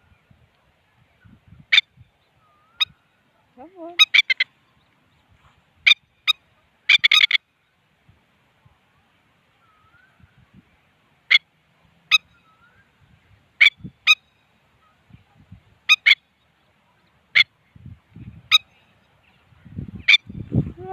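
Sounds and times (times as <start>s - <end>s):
bird calling sharply: 3.8s - 4.8s, 5.8s - 7.4s.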